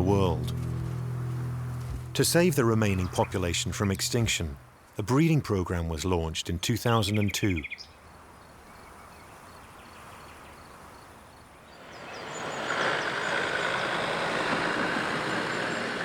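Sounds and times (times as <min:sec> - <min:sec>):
motor vehicle approaching: 0:00.0 - 0:04.8, 0:11.8 - 0:16.0
small birds chirping: 0:06.8 - 0:14.5.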